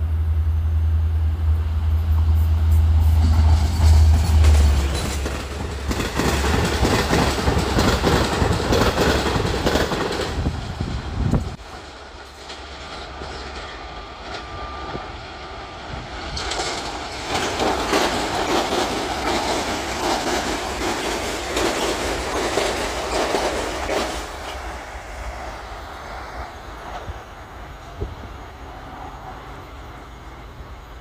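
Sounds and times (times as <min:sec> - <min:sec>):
commuter train passing: 0:00.0 - 0:31.0
wheels clicking over rail joints: 0:03.2 - 0:24.8.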